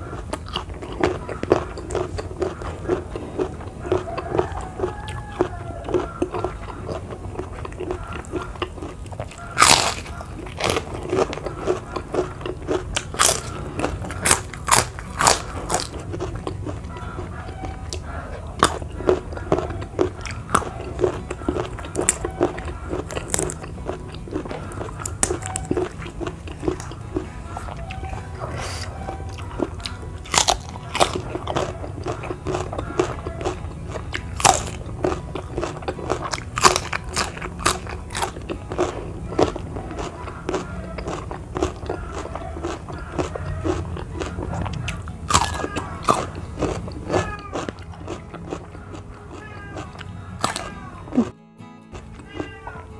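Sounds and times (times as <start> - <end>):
crunchy food being chewed: 0.0 - 52.9
faint background music: 0.0 - 52.9.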